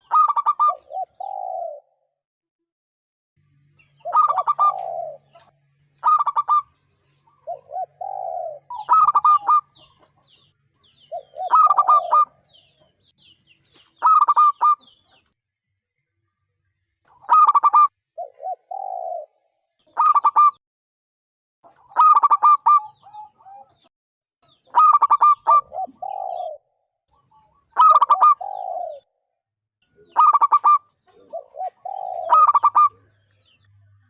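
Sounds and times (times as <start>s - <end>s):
dove cooing: 0.0s - 2.0s, 4.0s - 6.7s, 7.3s - 10.1s, 10.9s - 12.8s, 14.0s - 15.0s, 17.2s - 20.6s, 21.7s - 23.9s, 24.7s - 29.1s, 30.0s - 33.2s
faint high bird chirps: 3.6s - 20.6s, 21.7s - 29.1s.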